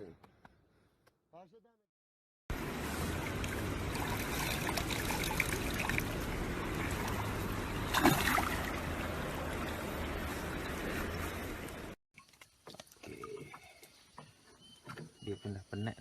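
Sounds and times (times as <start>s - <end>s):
water running: 2.6s - 12.0s.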